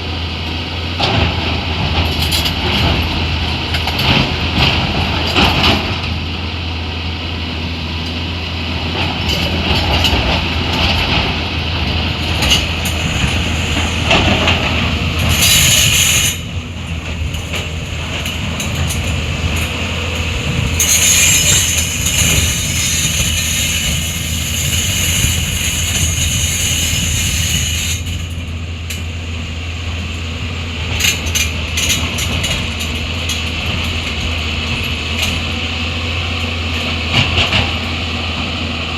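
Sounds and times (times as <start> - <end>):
heavy diesel machinery running: 0.0 - 38.9
metallic clatter and rattling: 30.9 - 35.6.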